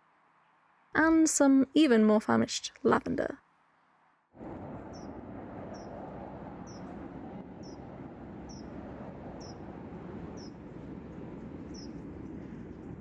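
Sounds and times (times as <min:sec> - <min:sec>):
outdoor background noise: 0:00.0 - 0:13.0
small bird chirping: 0:06.7 - 0:06.9, 0:08.5 - 0:08.7, 0:09.4 - 0:09.6, 0:11.7 - 0:11.9.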